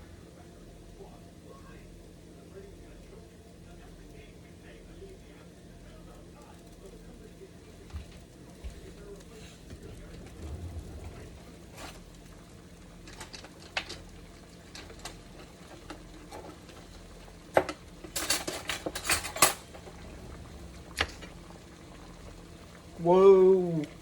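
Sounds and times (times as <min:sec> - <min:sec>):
faint steady hum: 0:00.0 - 0:24.0
dishes and utensils clinking: 0:17.6 - 0:20.0.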